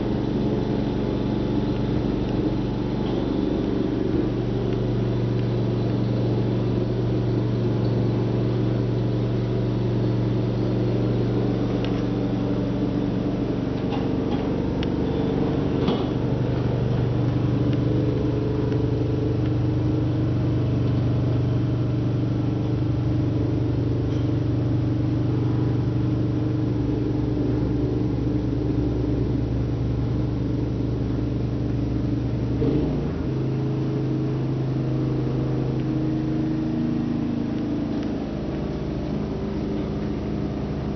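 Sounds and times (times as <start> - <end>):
snow blower engine running: 0.0 - 40.9.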